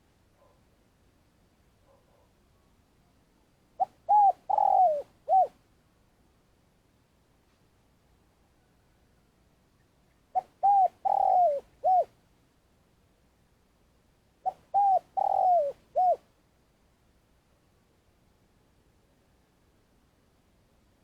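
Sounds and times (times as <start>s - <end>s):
dove cooing: 3.8s - 5.6s, 10.3s - 12.1s, 14.4s - 16.2s.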